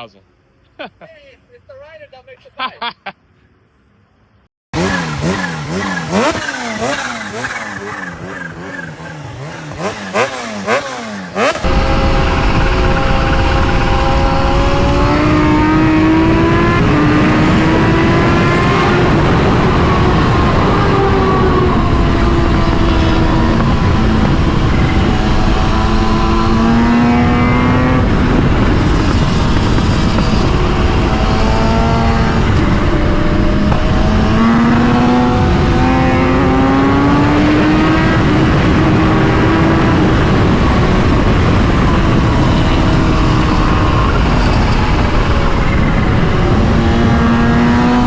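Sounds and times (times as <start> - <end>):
motorcycle engine running hard: 4.8 - 48.0
wind noise on microphone: 11.5 - 48.0.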